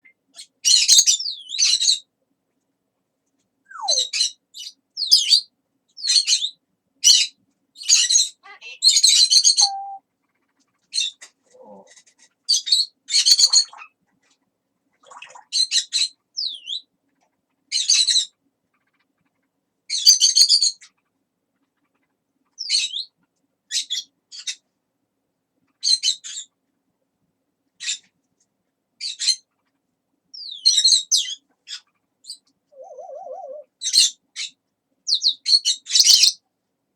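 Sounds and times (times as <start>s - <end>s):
parrot squawks and chirps: 0.0s - 2.0s, 3.7s - 14.4s, 15.0s - 16.8s, 17.7s - 21.0s, 29.0s - 29.7s, 30.4s - 36.4s.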